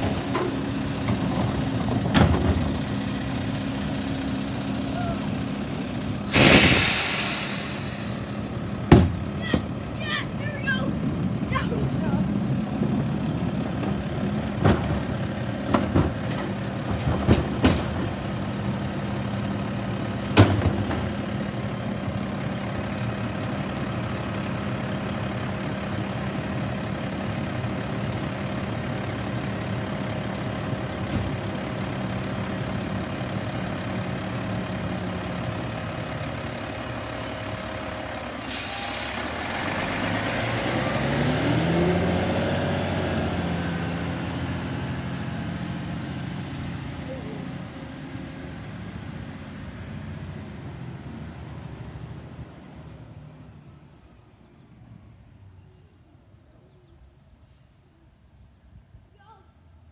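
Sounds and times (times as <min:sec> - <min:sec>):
diesel engine idling: 0:00.0 - 0:50.8
air brakes hissing: 0:06.2 - 0:09.0, 0:38.4 - 0:40.6
engine revving up: 0:38.5 - 0:46.2.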